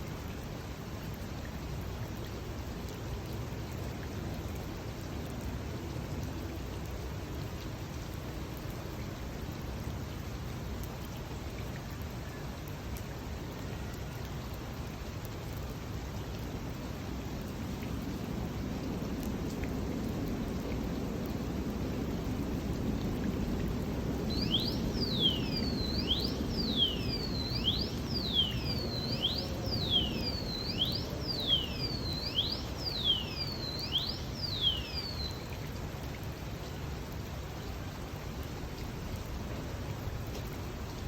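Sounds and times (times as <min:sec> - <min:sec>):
steady rain hiss: 0:00.0 - 0:41.0
bird whistling sharp notes: 0:24.3 - 0:35.5.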